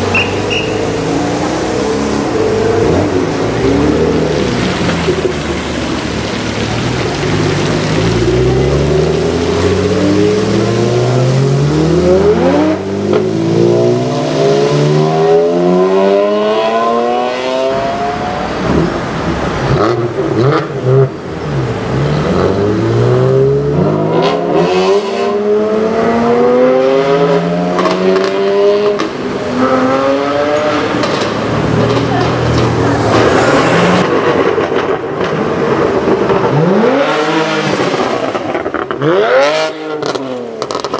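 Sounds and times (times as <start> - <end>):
car engine accelerating hard: 0.0 - 40.9
exhaust crackles and pops: 2.9 - 10.8, 30.5 - 40.9.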